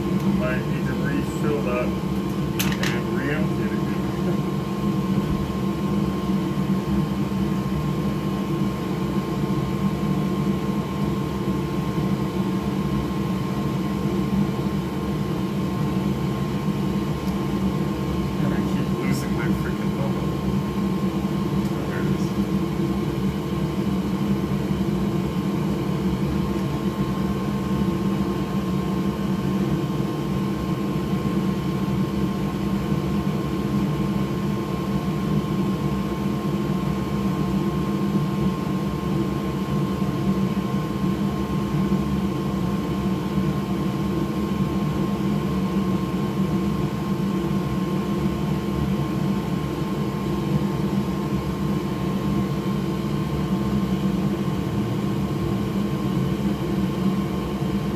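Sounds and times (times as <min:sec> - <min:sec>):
electric fan whirring: 0:00.0 - 0:57.9.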